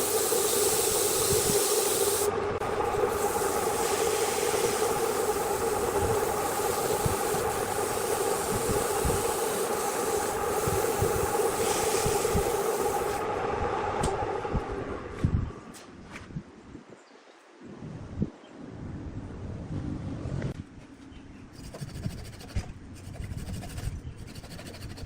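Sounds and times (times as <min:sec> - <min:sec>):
tool hissing against spinning wood: 0:00.0 - 0:13.3, 0:21.6 - 0:25.0
lathe motor whine: 0:00.0 - 0:15.3.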